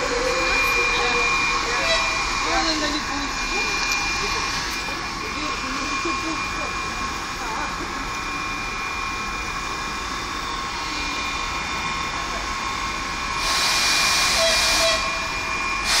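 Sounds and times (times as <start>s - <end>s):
high steady whining tones: 0.0s - 16.0s
standing train hum: 0.0s - 16.0s
loud hiss: 8.3s - 16.0s.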